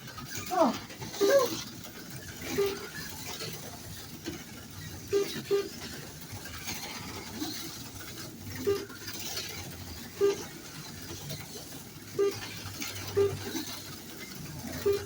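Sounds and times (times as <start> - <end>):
slot cars whirring on track: 0.0 - 15.0
short electronic beeps: 12.2 - 12.4, 13.2 - 13.4, 14.8 - 15.0.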